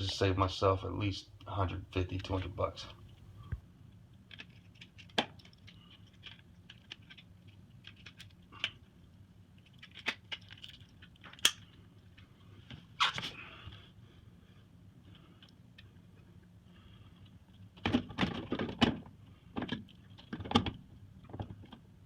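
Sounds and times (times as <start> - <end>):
clicks and knocks of parts handled: 3.0 - 8.9, 9.6 - 13.3, 17.2 - 21.8.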